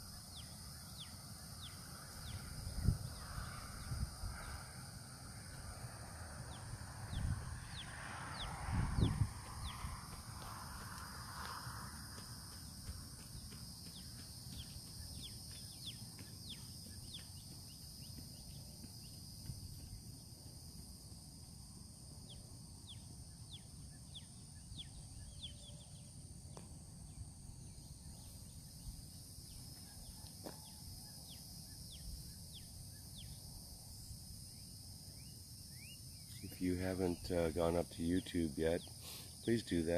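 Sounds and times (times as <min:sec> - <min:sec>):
insects buzzing: 0:00.0 - 0:39.9
wind rumble on microphone: 0:02.2 - 0:13.5.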